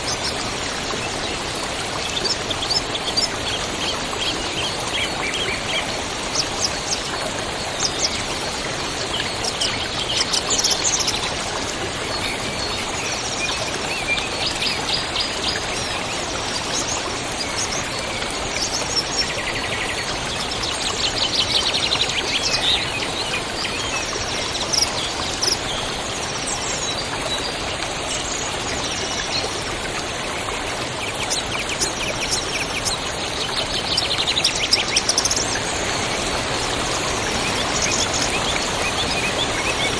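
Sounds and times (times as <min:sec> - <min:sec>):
small birds chirping and trilling: 0:00.0 - 0:30.3
river flowing: 0:00.0 - 0:30.7.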